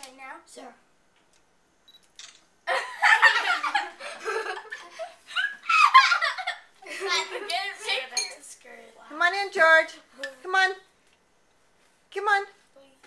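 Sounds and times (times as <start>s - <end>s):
people laughing: 2.7s - 7.5s.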